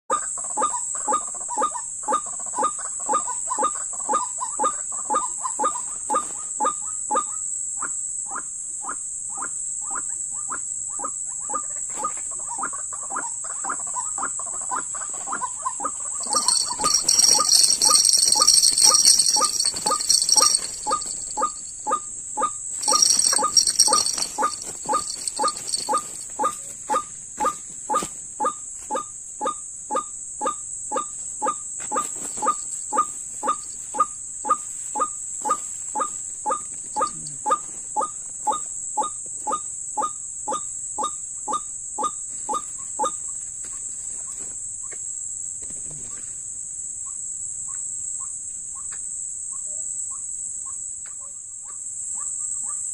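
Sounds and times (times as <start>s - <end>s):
high insect drone: 16.2s - 52.9s.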